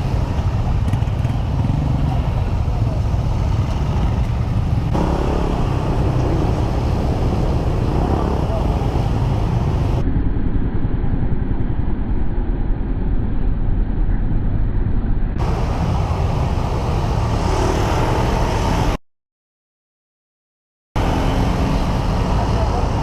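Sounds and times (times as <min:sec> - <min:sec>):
wind rumble on microphone: 0:00.0 - 0:19.0
scooter engine: 0:00.4 - 0:02.2, 0:04.9 - 0:10.0.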